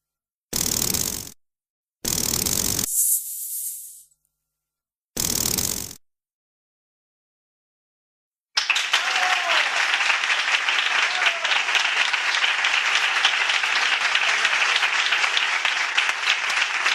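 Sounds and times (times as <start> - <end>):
crowd applauding: 8.6 - 16.9.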